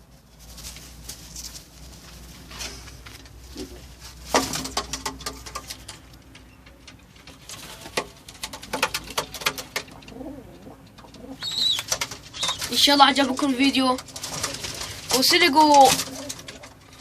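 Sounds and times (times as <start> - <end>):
sharp clicks and scuffling: 0.4 - 17.0
pigeons cooing: 8.5 - 12.9.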